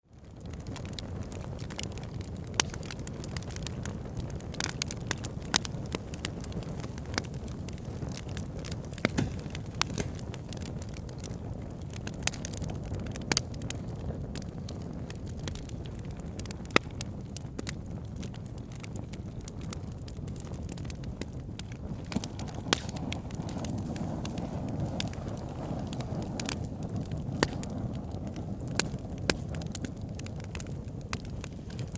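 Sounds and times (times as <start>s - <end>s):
fire rumbling: 0.0s - 31.9s
logs crackling and popping: 0.0s - 31.9s.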